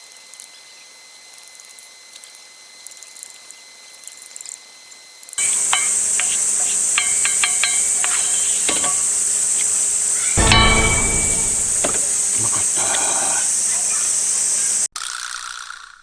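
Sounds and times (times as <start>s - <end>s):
cicadas droning: 0.0s - 10.4s, 12.5s - 14.9s
thump: 10.4s - 12.2s.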